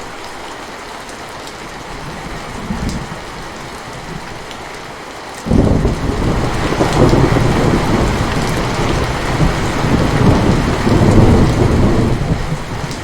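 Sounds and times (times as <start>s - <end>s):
heavy rain falling: 0.0s - 13.0s
low rumble of thunder: 2.0s - 4.5s, 5.5s - 13.0s.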